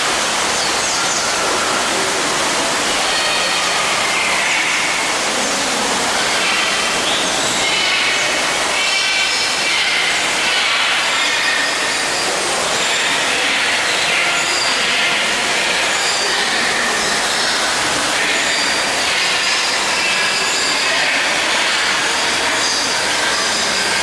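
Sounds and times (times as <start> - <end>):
many birds chirping and whistling: 0.2 - 24.0.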